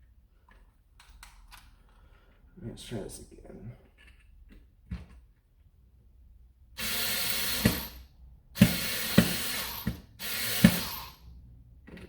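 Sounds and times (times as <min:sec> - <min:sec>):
electric screwdriver running: 0:06.8 - 0:08.0, 0:08.6 - 0:11.2.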